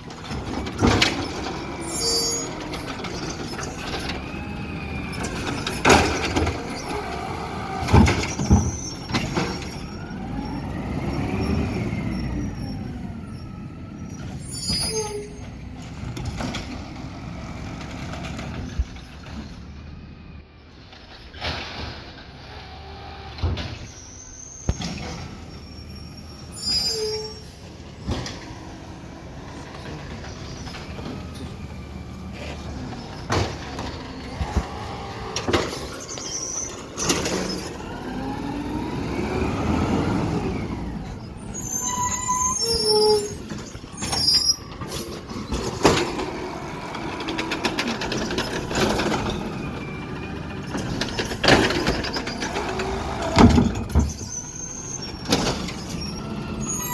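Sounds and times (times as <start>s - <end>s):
garbage truck machinery running: 0.0s - 56.9s
short high squeals: 1.7s - 3.9s, 8.4s - 15.6s, 23.7s - 27.8s, 35.8s - 37.8s, 41.1s - 45.6s, 53.2s - 56.9s.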